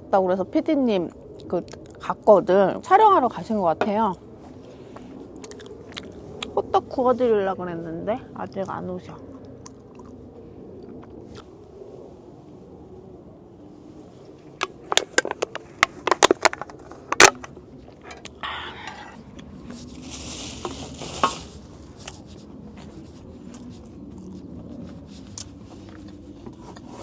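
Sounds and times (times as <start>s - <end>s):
rustle: 13.6s - 27.0s.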